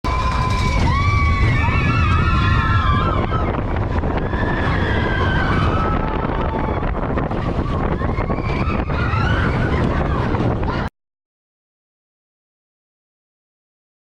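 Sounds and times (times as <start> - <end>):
wind rumble on microphone: 0.0 - 10.9.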